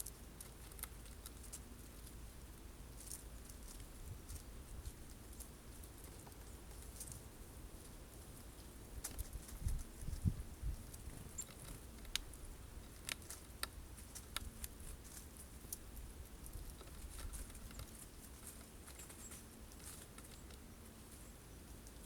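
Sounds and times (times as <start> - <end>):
birds pecking at seeds: 0.0 - 22.0.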